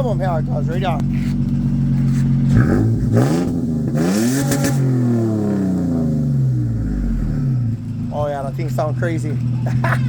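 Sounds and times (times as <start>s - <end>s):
truck engine revving: 0.0s - 10.0s.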